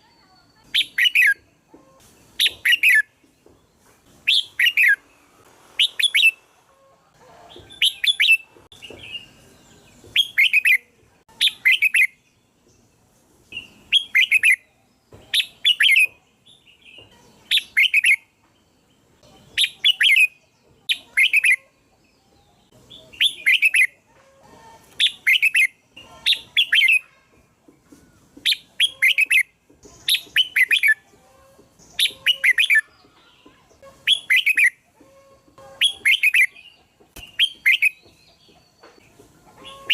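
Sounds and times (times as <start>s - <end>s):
bird chirping calls: 0.0s - 39.9s.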